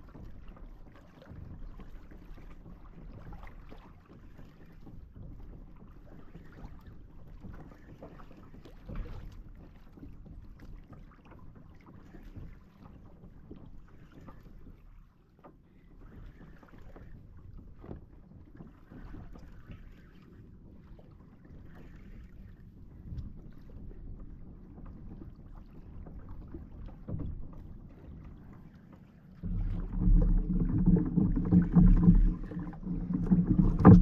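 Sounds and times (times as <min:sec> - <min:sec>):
water lapping against kayak hull: 0:00.0 - 0:34.0
small knocks: 0:29.4 - 0:34.0.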